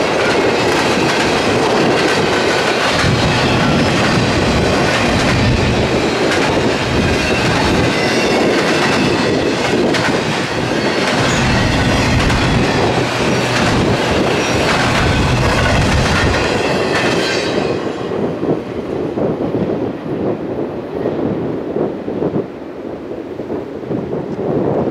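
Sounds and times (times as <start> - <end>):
freight train cars rolling past: 0.0 - 19.2.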